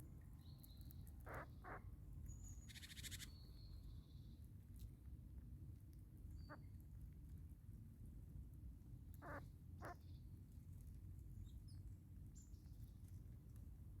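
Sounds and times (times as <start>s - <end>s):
faint bird calls: 1.2s - 3.4s, 9.2s - 10.0s.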